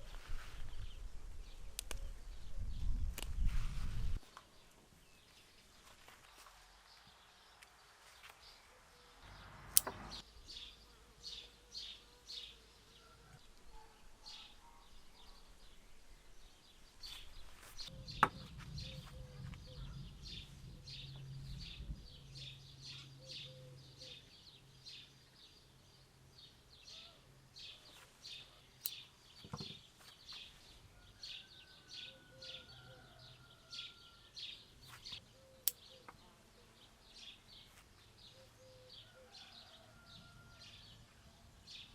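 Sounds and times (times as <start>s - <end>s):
small birds chirping: 0.0s - 3.5s, 4.1s - 41.9s.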